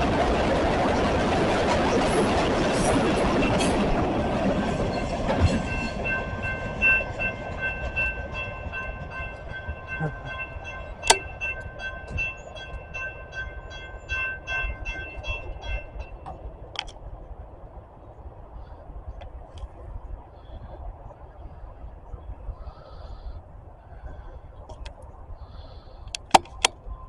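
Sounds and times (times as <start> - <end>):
passing train rumble: 0.0 - 27.0
crossing bell ringing: 4.6 - 16.5
sharp click: 26.1 - 26.8.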